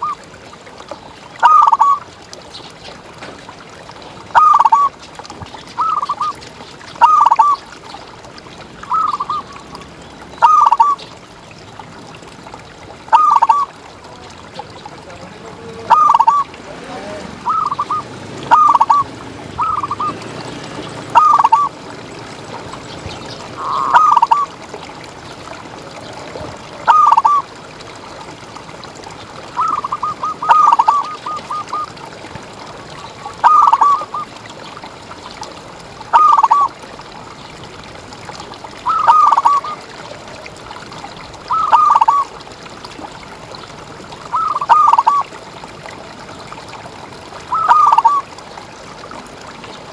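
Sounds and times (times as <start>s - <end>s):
dove cooing: 10.4s - 11.0s, 15.4s - 24.6s, 25.9s - 27.4s, 29.5s - 32.0s, 32.9s - 34.3s, 36.1s - 36.7s, 38.9s - 39.8s, 41.5s - 42.3s, 44.3s - 45.3s, 47.5s - 48.2s.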